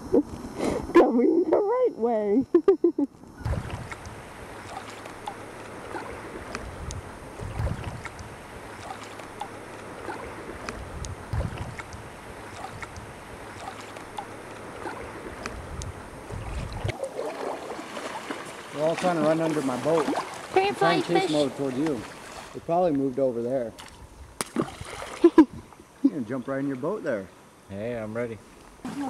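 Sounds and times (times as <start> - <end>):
wind rumbling on microphone: 3.2 - 17.0, 23.8 - 25.8
water splashing around kayak: 3.4 - 27.5.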